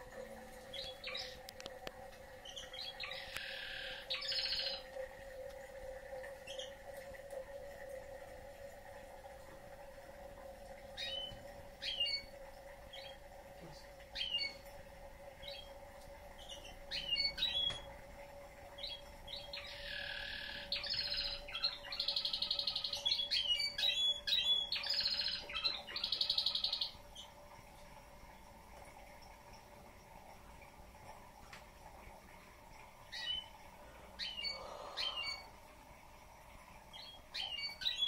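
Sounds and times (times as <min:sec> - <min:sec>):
faint steady hum: 0:00.0 - 0:38.0
canary chirps and trills: 0:00.7 - 0:01.4, 0:02.4 - 0:04.8, 0:06.4 - 0:06.8, 0:11.0 - 0:12.3, 0:12.9 - 0:13.2, 0:14.2 - 0:14.6, 0:15.4 - 0:15.7, 0:16.4 - 0:17.9, 0:18.8 - 0:27.3, 0:33.1 - 0:33.6, 0:34.2 - 0:35.5, 0:36.9 - 0:38.0.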